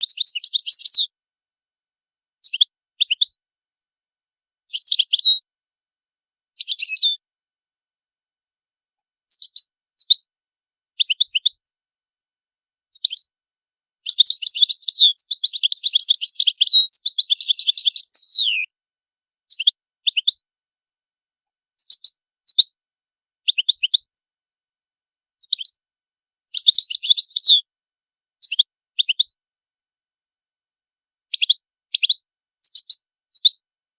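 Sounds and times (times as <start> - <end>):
goldfinch twittering and trills: 0.0 - 1.1, 4.7 - 5.4, 6.6 - 7.2, 14.0 - 18.7, 26.5 - 27.6.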